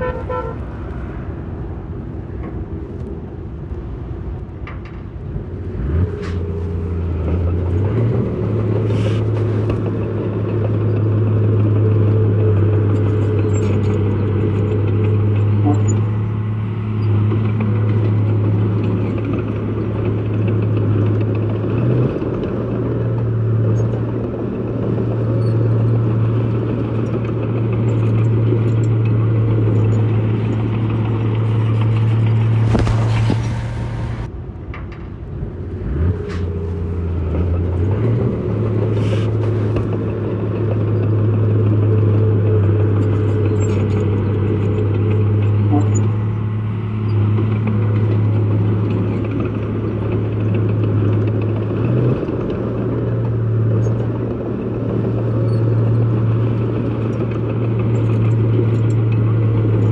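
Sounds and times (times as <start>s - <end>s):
heavy diesel engine under load: 0.0s - 59.9s
short burst of noise: 32.6s - 34.3s.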